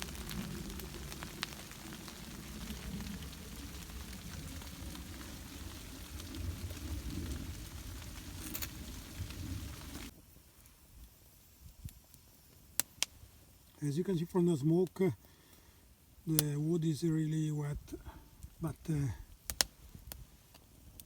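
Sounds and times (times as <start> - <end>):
low rumble: 0.0 - 10.1
freezing rain hissing patter: 0.0 - 21.0
sharp crackles: 0.0 - 21.0.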